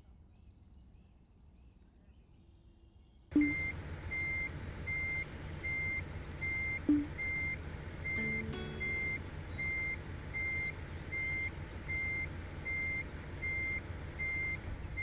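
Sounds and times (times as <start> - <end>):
diesel engine rumble: 3.3 - 15.0
truck reversing alarm beeping: 3.3 - 15.0.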